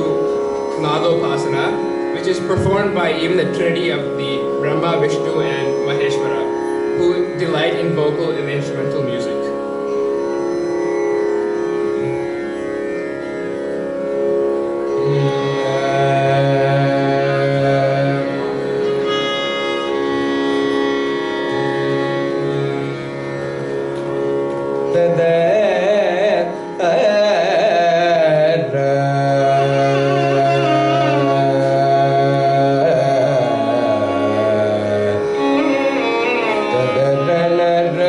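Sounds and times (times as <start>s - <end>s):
slow ornamented melodic line: 0.0s - 38.0s.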